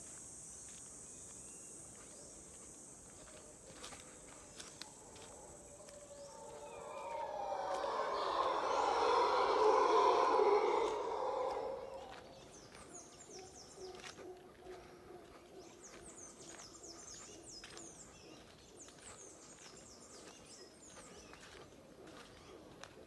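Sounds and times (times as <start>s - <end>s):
high falling bird chirps: 5.6s - 12.6s.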